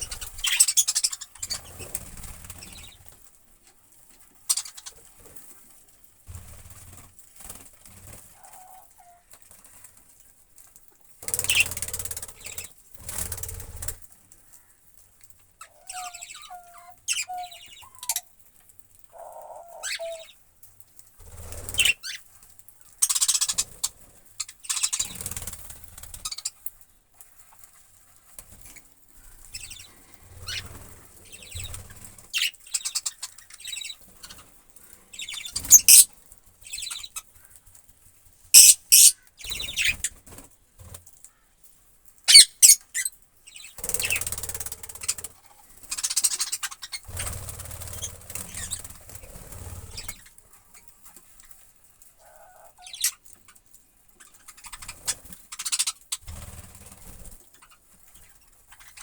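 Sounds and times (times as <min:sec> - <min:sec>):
budgerigars chirping: 0:00.0 - 0:02.0, 0:11.3 - 0:11.7, 0:15.6 - 0:18.3, 0:19.2 - 0:20.4, 0:21.7 - 0:22.2, 0:24.4 - 0:25.2, 0:32.4 - 0:34.4, 0:35.2 - 0:36.1, 0:38.6 - 0:40.1, 0:42.3 - 0:44.2, 0:45.9 - 0:47.1, 0:48.0 - 0:48.9, 0:52.2 - 0:53.2, 0:54.2 - 0:56.1
wing fluttering and rustling: 0:00.0 - 0:41.4, 0:42.0 - 0:59.0.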